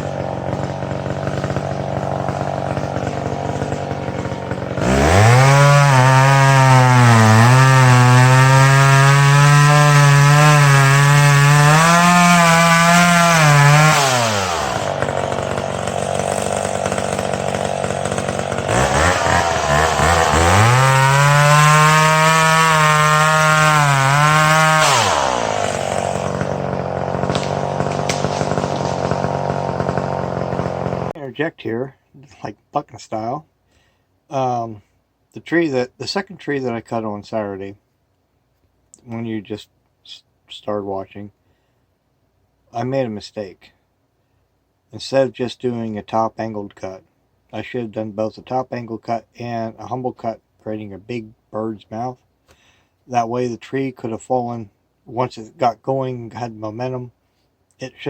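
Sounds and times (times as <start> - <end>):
chainsaw revving and cutting wood: 0.0 - 31.2.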